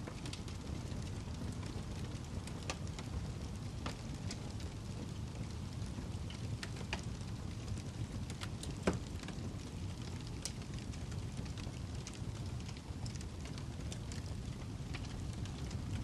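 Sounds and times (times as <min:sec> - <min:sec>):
fire crackles and pops: 0:00.0 - 0:16.0
wood fire burning: 0:00.0 - 0:16.0.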